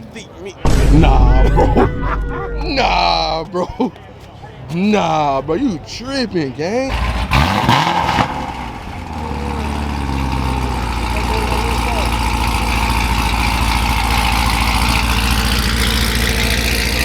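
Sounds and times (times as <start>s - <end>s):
car engine idling: 6.9s - 17.0s.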